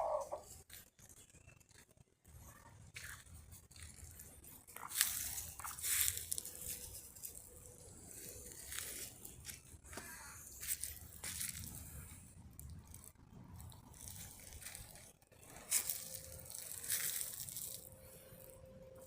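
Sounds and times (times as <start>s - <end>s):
animal crunching and tearing food: 10.8s - 18.4s.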